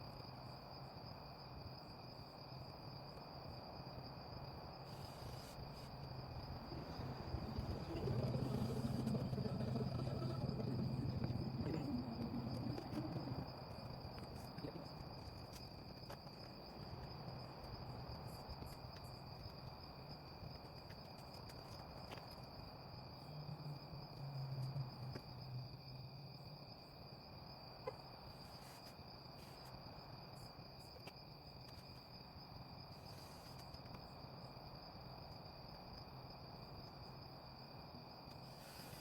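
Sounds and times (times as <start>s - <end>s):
crickets trilling: 0.0s - 39.0s
low rumble: 6.4s - 14.1s.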